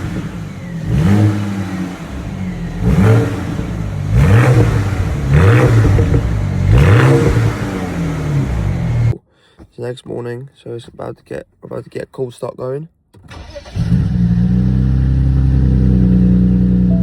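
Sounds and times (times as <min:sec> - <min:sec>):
car engine revving: 0:00.0 - 0:09.2, 0:13.3 - 0:17.0.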